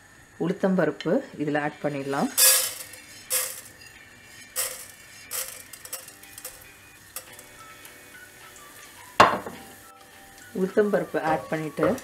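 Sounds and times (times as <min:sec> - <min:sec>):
lentils sizzling in oil: 0:00.0 - 0:12.0
lentils rattling into pot: 0:02.0 - 0:07.5.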